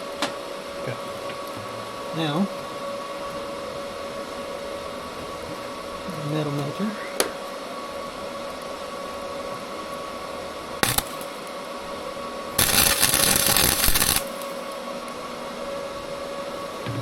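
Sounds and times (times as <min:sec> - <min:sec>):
steady hum: 0:10.4 - 0:17.0
electric welder arc crackling: 0:10.8 - 0:11.5, 0:12.5 - 0:14.8.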